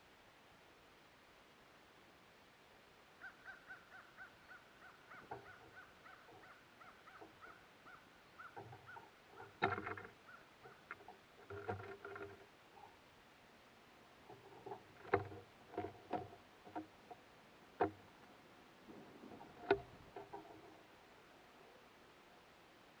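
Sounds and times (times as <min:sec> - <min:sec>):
knocks and scrabbling at feeder: 0:05.2 - 0:07.4, 0:08.5 - 0:12.9, 0:14.2 - 0:20.9.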